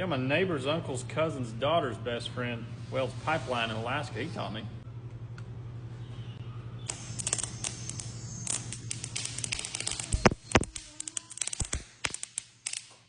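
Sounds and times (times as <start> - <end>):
welder hum: 6.6 - 13.0
welding arc crackling: 6.8 - 13.0
loud pops: 6.9 - 12.9.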